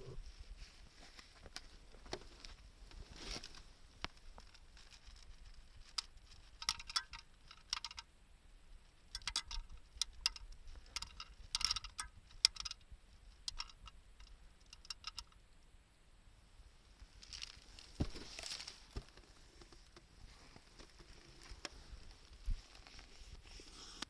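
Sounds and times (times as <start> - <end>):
wood fire crackling: 16.8 - 23.2.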